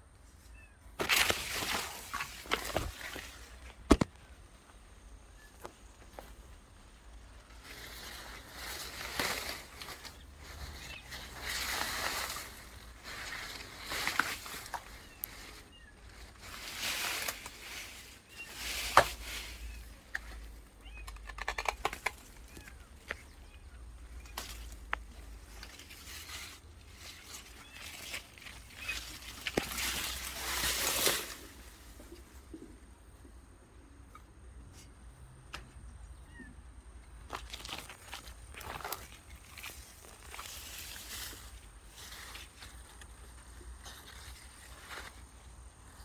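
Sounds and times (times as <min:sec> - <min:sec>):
rustling: 0:00.3 - 0:04.8, 0:05.4 - 0:32.8, 0:37.2 - 0:46.0
sharp clicks and snaps: 0:21.0 - 0:22.7.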